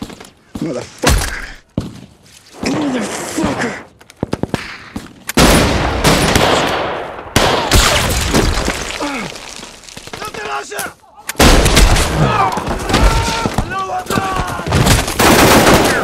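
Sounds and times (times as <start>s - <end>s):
men shouting and groaning: 12.1s - 14.8s.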